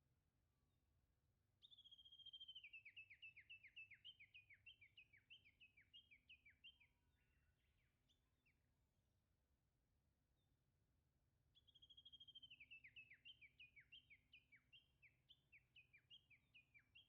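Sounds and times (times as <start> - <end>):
songbird singing: 1.6 - 9.2, 11.5 - 17.0.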